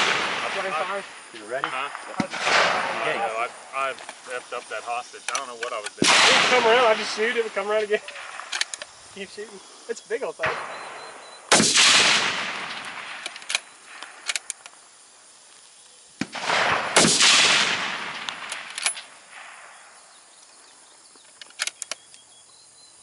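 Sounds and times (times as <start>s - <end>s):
rifle shot echoing: 0.0s - 1.1s, 2.0s - 3.4s, 6.0s - 8.6s, 10.4s - 14.2s, 16.2s - 19.9s.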